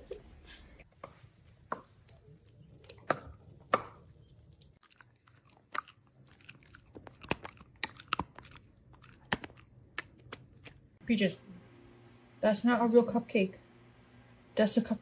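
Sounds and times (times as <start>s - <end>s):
pet crunching food: 1.6s - 11.0s.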